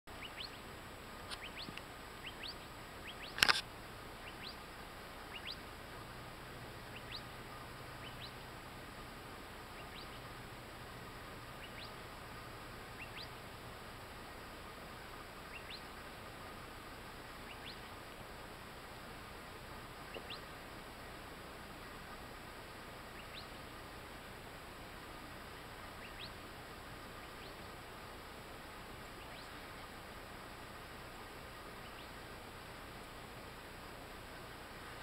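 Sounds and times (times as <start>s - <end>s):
birds chirping: 0.1s - 5.8s, 6.9s - 8.5s, 9.7s - 10.4s, 11.5s - 12.0s, 12.9s - 13.4s, 15.4s - 16.6s, 17.4s - 17.9s, 20.0s - 20.6s, 23.1s - 23.7s, 25.9s - 26.4s, 29.1s - 30.0s.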